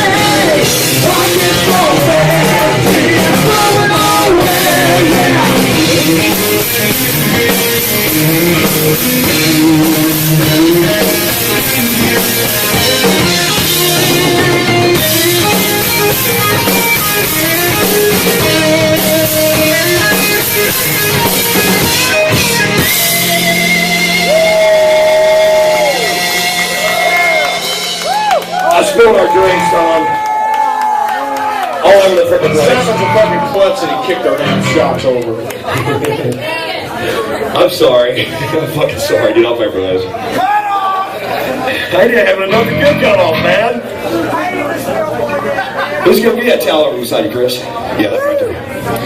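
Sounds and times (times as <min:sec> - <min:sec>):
distorted electric guitar: 0:00.0 - 0:30.2, 0:32.4 - 0:36.1, 0:42.4 - 0:44.0
drum kit: 0:00.0 - 0:30.2, 0:42.5 - 0:43.6
heavy metal band playing: 0:00.0 - 0:30.3, 0:31.9 - 0:35.2, 0:42.0 - 0:43.9.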